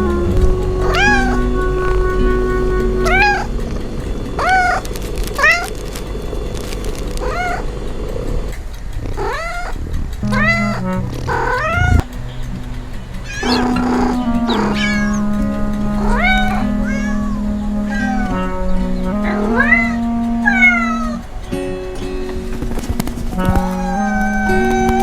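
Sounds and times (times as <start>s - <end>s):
background music: 0.0s - 6.6s, 10.2s - 25.0s
cat meowing: 0.8s - 1.4s, 3.0s - 3.5s, 4.4s - 4.8s, 7.2s - 7.6s, 9.2s - 12.1s, 13.3s - 15.3s, 16.0s - 18.4s, 23.5s - 25.0s.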